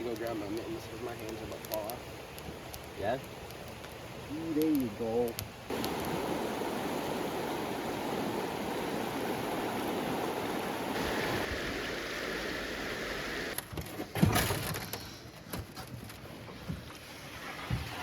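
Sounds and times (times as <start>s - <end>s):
stream water flowing: 0.0s - 13.6s.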